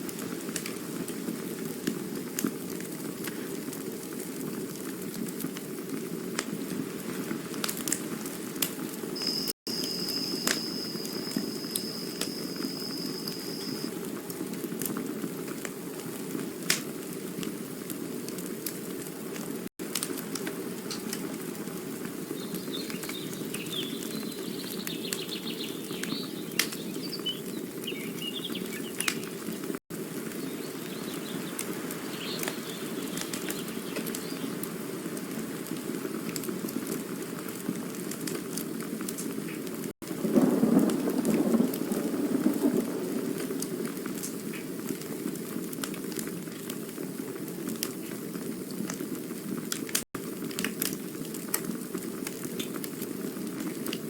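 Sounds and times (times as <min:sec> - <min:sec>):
campfire burning: 0:00.0 - 0:54.0
fire crackling pops: 0:00.0 - 0:54.0
faint chirps: 0:09.2 - 0:13.9
thin high whistle: 0:09.2 - 0:13.9.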